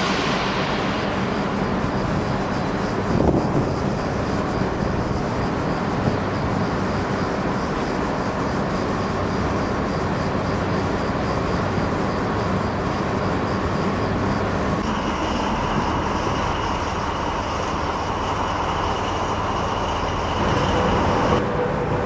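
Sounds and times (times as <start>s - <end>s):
train rumbling: 0.0s - 22.0s
faint pulsing high tone: 12.5s - 22.0s.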